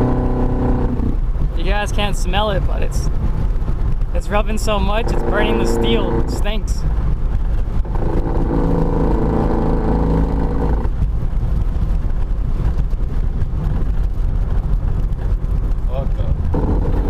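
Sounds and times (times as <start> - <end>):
droning metal rubbing: 0.0 - 1.4, 4.5 - 11.4, 16.3 - 17.0
car engine rumble: 0.0 - 17.0.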